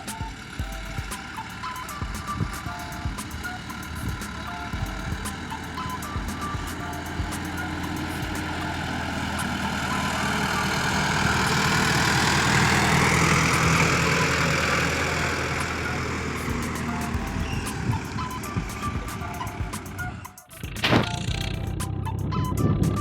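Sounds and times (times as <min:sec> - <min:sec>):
rushing noise: 0:00.0 - 0:23.0
vehicle engine hum: 0:00.0 - 0:23.0.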